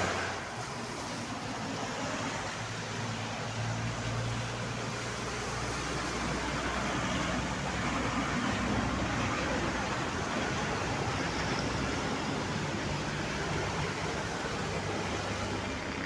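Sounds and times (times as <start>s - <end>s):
heavy vehicle engine hum: 0.0s - 16.0s
road and tyre noise: 0.0s - 16.0s.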